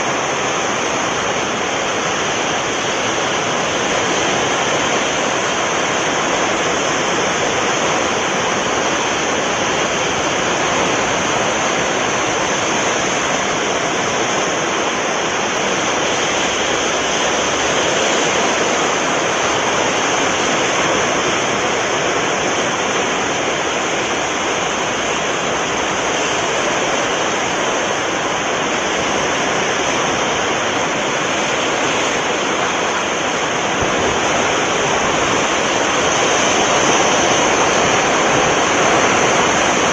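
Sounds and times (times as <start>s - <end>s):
sea surf breaking on shore: 0.0s - 39.9s.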